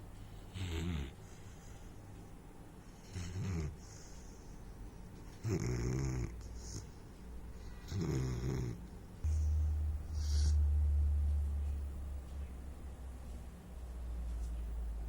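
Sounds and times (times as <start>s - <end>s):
puppy snoring: 0.4s - 1.4s, 3.0s - 4.4s, 5.2s - 10.7s.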